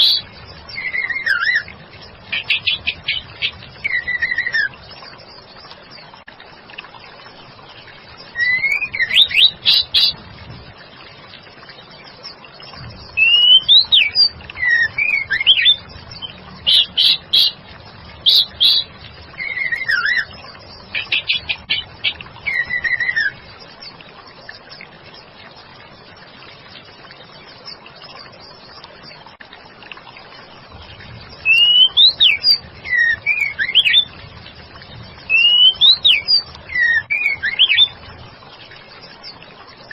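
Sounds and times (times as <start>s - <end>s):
bird calling with whistled notes: 0.0s - 1.7s, 2.3s - 5.1s, 8.2s - 10.2s, 13.0s - 17.6s, 18.2s - 23.5s, 31.4s - 34.2s, 35.2s - 38.0s.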